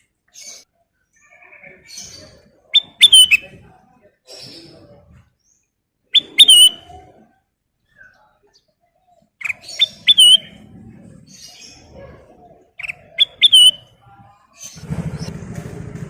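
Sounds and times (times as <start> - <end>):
bulbul whistling song: 0.4 - 3.5, 5.5 - 7.0, 9.4 - 10.6, 12.8 - 15.3.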